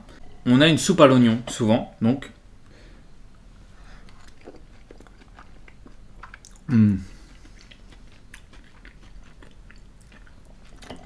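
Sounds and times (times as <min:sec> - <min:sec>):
appreciative mmm: 0:03.8 - 0:11.0
person chewing food: 0:03.8 - 0:11.0.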